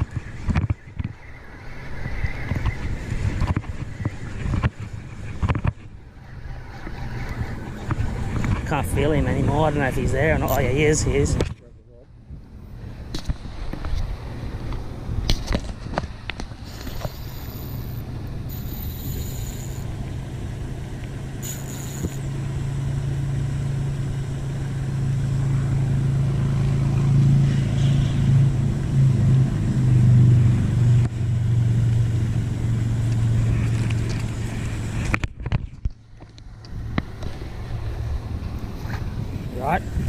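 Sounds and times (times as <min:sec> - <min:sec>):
pond aerator motor humming: 0:16.1 - 0:27.0.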